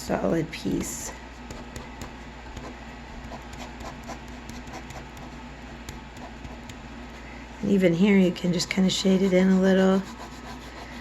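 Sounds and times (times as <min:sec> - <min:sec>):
low steady hum: 0:00.0 - 0:11.0
pencil scratching on paper: 0:01.5 - 0:05.4, 0:06.1 - 0:06.8, 0:08.0 - 0:11.0.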